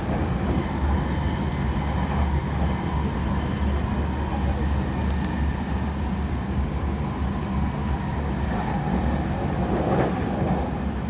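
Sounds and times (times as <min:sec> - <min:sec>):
electric train rumbling inside car: 0:00.0 - 0:11.0.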